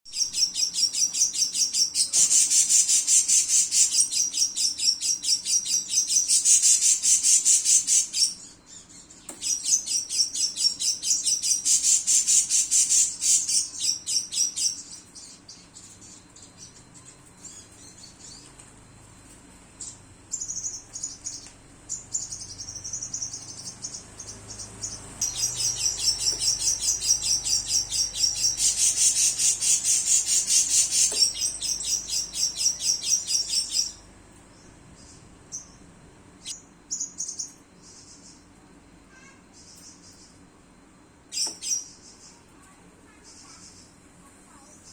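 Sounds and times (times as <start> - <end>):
lovebird chattering chirps: 0.2 - 16.8, 19.8 - 34.1.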